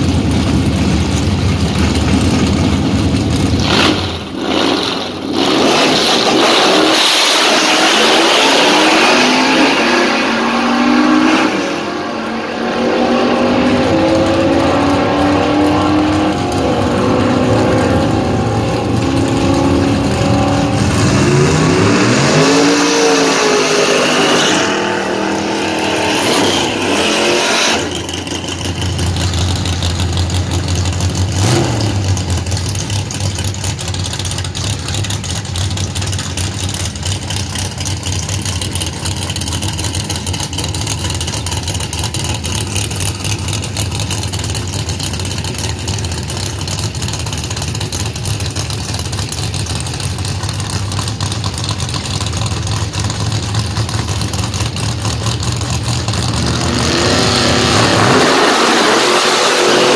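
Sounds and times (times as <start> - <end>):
car engine idling: 0.0 - 5.4, 13.4 - 58.2
engine revving hard: 3.6 - 28.8, 56.3 - 59.9.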